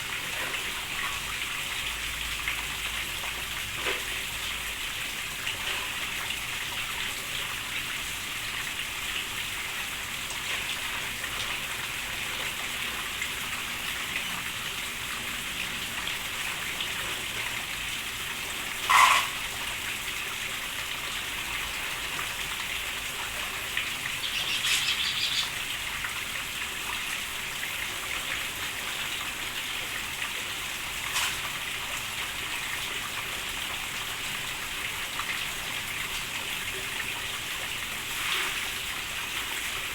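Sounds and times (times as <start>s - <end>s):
steady rain falling: 0.0s - 39.9s
high bird chirping: 24.2s - 25.6s.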